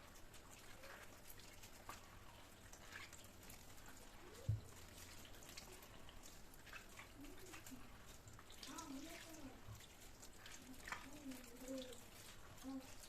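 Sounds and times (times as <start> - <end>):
faint light clicks and taps: 2.8 - 8.9.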